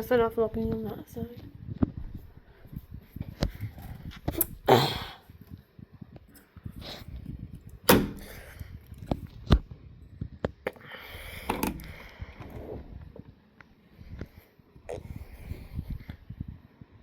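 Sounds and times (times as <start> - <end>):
sharp bangs and knocks: 7.9 - 8.4.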